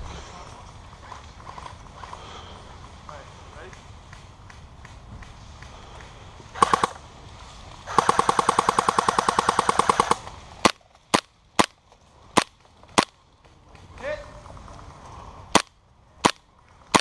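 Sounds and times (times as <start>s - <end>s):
airsoft submachine gun firing: 6.5s - 7.0s, 7.9s - 13.2s, 15.5s - 17.0s.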